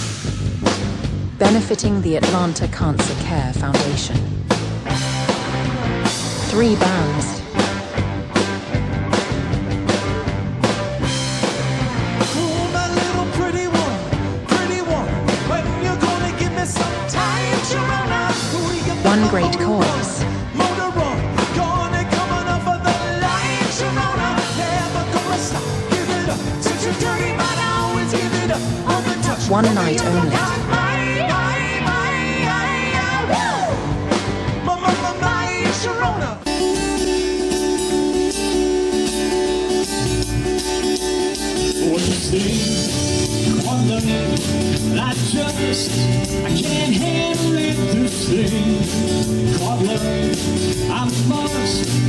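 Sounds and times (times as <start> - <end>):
drum beat: 0.0 - 13.8, 14.5 - 31.0
electric guitar: 3.0 - 52.0
person singing: 12.4 - 33.8.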